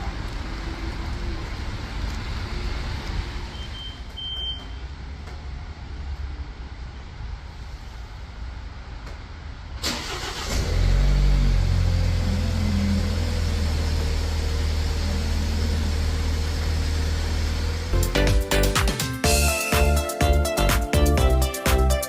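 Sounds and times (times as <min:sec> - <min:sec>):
car engine starting: 0:09.6 - 0:22.0
car engine idling: 0:09.9 - 0:18.8
music: 0:18.0 - 0:22.0.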